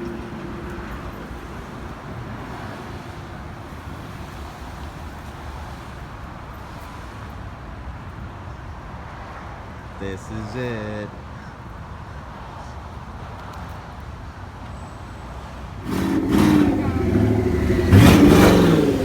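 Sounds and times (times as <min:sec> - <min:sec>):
car engine and road noise: 0:00.0 - 0:09.9, 0:11.7 - 0:19.0.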